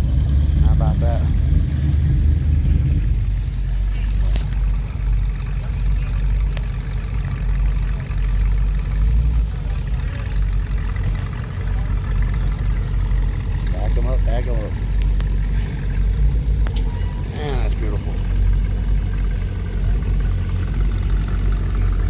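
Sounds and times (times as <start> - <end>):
car engines rumbling past slowly: 0.0 - 22.0.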